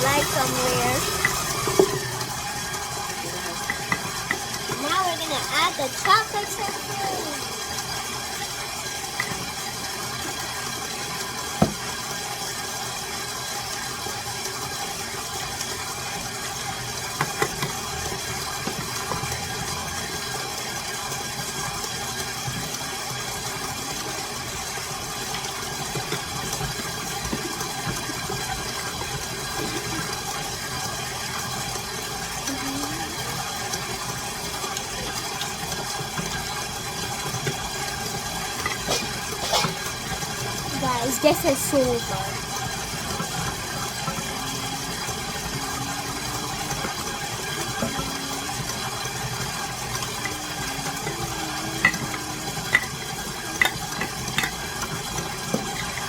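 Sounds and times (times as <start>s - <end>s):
electric mixer motor running: 0.0s - 56.0s.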